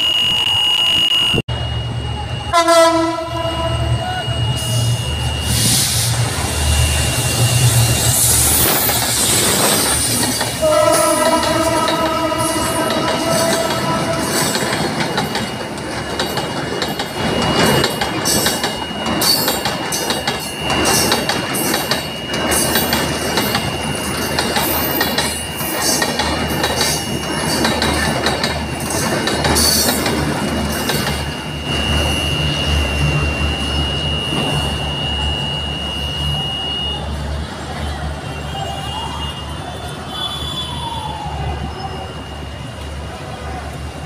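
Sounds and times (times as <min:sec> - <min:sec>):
steady high-pitched tone: 0:00.0 - 0:37.4, 0:40.9 - 0:43.8
train horn: 0:02.4 - 0:04.1, 0:10.6 - 0:14.7
train wheels clattering over rail joints: 0:13.0 - 0:31.4.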